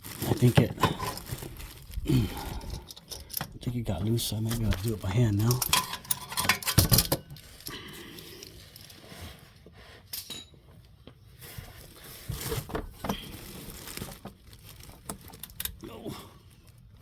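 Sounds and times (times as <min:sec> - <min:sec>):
metal tools clinking: 0:00.7 - 0:01.5, 0:02.5 - 0:09.0, 0:10.1 - 0:10.6.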